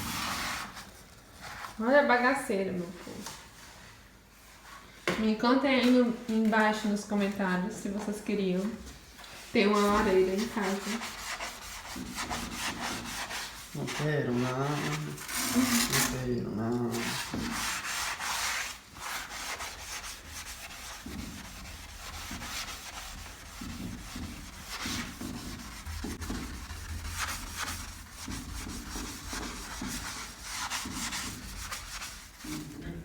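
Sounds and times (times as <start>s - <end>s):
sponge scrubbing glass: 9.6s - 32.7s.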